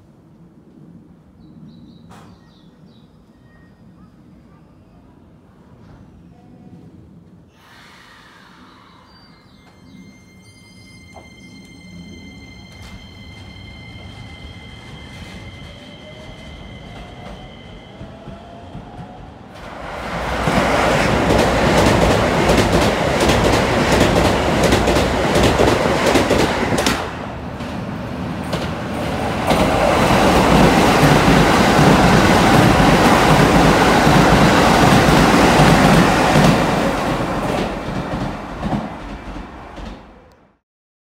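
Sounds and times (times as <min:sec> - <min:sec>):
train passing with loud rumble: 0:09.6 - 0:40.6
train wheels clacking over joints: 0:20.4 - 0:27.1.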